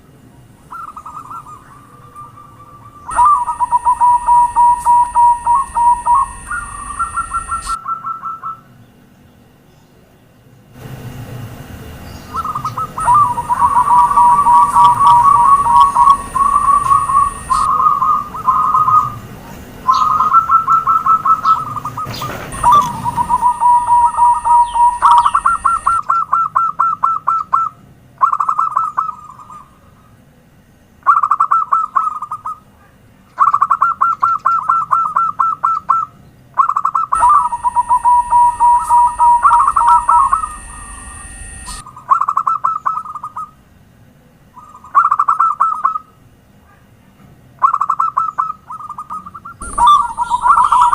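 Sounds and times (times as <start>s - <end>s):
steady high whine: 0.0s - 9.0s, 10.6s - 26.1s, 37.1s - 42.0s, 49.5s - 50.9s
doves cooing: 0.6s - 8.6s, 12.3s - 30.1s, 33.4s - 43.5s, 47.6s - 50.9s.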